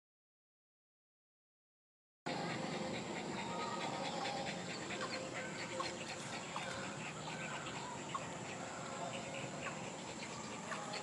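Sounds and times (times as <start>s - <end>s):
constant background hiss: 2.3s - 11.0s
dog panting: 2.3s - 11.0s.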